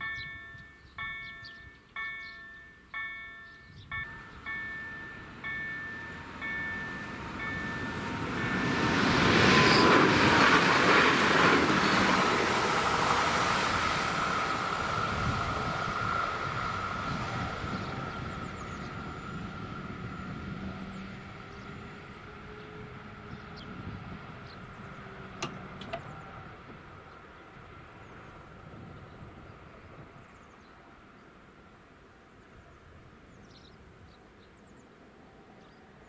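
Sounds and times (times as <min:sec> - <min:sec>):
electric train running with high whine: 0:00.0 - 0:30.2
sharp clunks: 0:25.4 - 0:26.1.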